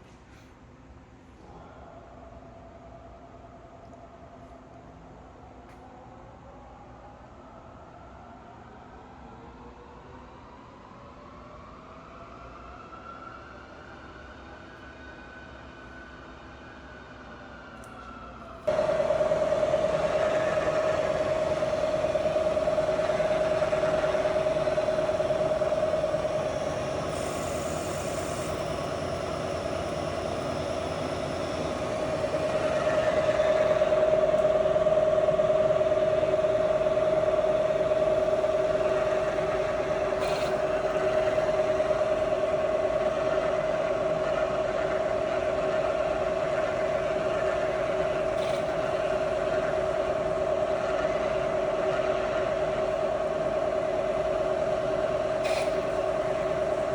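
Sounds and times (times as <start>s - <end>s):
milling machine whining: 18.7s - 56.9s.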